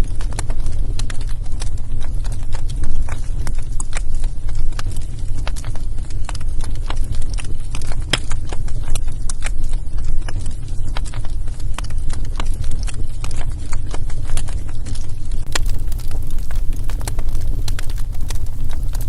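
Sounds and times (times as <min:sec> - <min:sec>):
wood fire crackling: 0:00.0 - 0:19.0
steady low rumble: 0:15.5 - 0:19.0.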